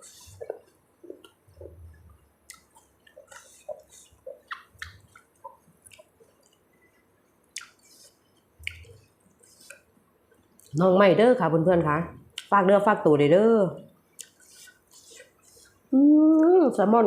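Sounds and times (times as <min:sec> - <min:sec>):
close-up chewing and mouth sounds: 0:00.0 - 0:10.8, 0:14.1 - 0:16.5.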